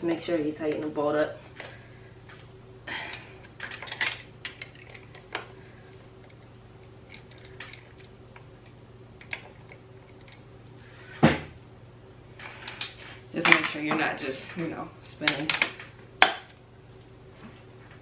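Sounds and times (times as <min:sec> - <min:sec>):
metal tools clinking on bolt: 0:03.6 - 0:10.5.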